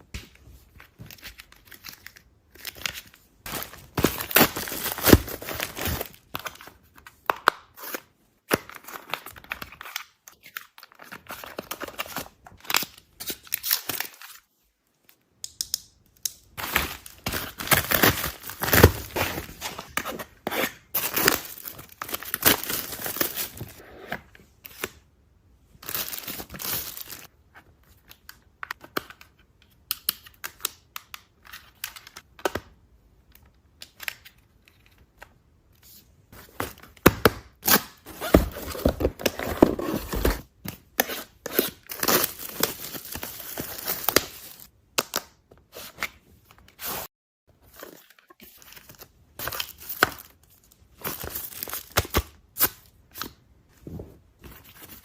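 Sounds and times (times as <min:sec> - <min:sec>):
packaging tearing and crinkling: 0:16.6 - 0:19.9, 0:21.0 - 0:23.8.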